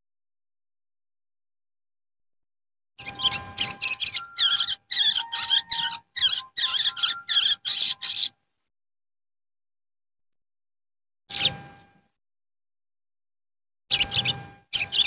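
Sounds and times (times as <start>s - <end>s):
bird chattering chirps: 3.0s - 8.3s, 13.9s - 15.0s.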